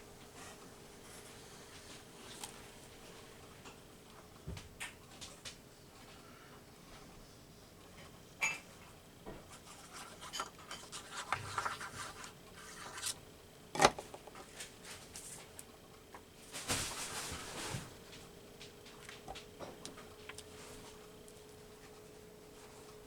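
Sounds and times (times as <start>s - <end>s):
paper rustling and scraping: 1.0s - 2.7s, 9.5s - 13.2s.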